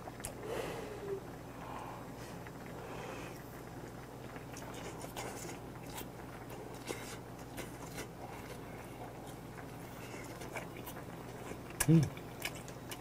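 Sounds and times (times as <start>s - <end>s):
low steady hum: 0.0s - 13.0s
man chewing: 3.6s - 13.0s.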